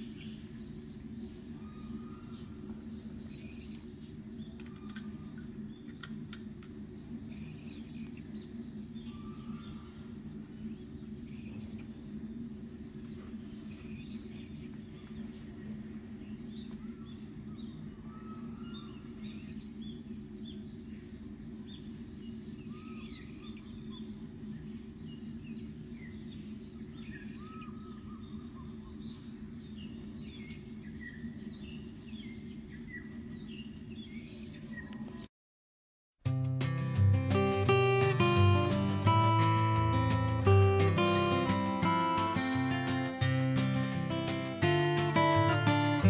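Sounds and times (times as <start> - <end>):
low background hum: 0.0 - 35.3
small birds chirping: 0.0 - 35.3, 36.6 - 46.0.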